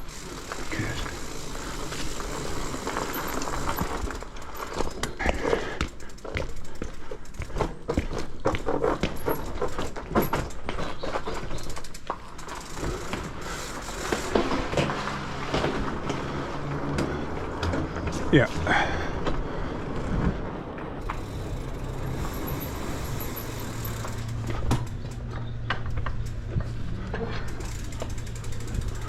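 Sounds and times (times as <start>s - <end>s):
tyres rushing on wet road: 0.0s - 4.3s, 13.8s - 19.7s
bike clicks and knocks: 0.0s - 18.3s, 19.1s - 29.0s.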